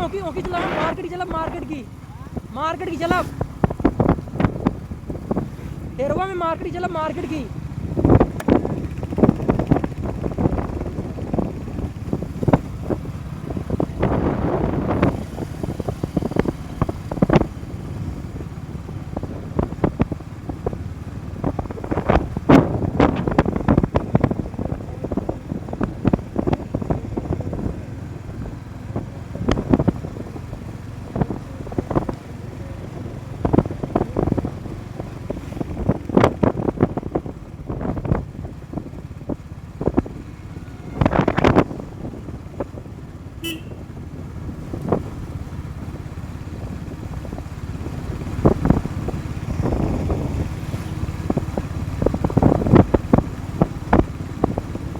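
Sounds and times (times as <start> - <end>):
motorcycle engine rumbling: 0.0 - 54.9
motorcycle horn toot: 40.6 - 41.4, 43.4 - 44.0.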